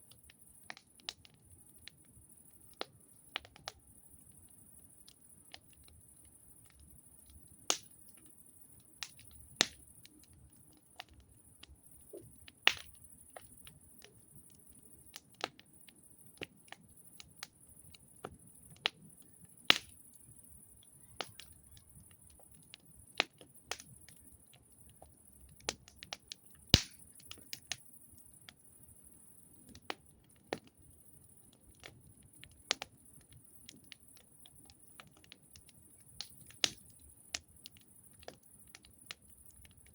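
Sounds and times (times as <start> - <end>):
campfire crackling: 0.1 - 39.9.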